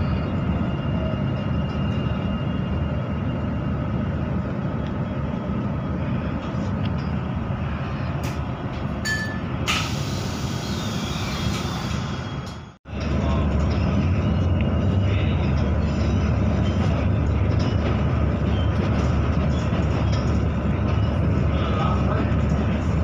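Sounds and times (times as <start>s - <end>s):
electric train rumble inside carriage: 0.0s - 23.0s
hiss: 9.7s - 12.1s.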